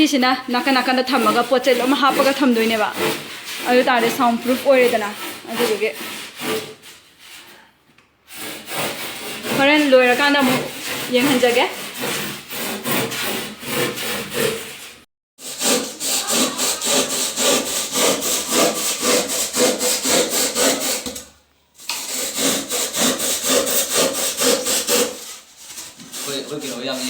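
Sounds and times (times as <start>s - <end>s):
rapid scratching strokes: 15.4s - 21.0s, 22.0s - 27.0s.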